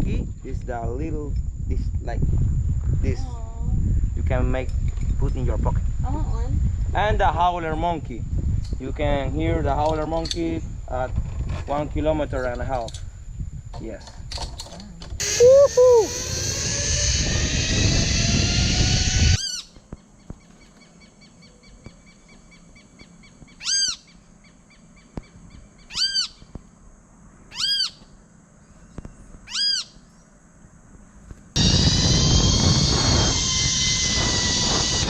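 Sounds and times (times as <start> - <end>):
insects buzzing: 0.0 - 35.0
zipline trolley whining on cable: 15.2 - 19.6, 31.6 - 35.0
person shouting: 15.4 - 16.1
bird calling: 19.4 - 26.6, 27.5 - 28.2, 29.0 - 30.3.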